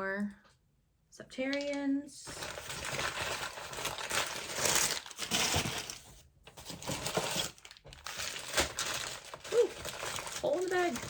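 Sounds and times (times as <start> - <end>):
packing bag crinkling: 2.3 - 11.0.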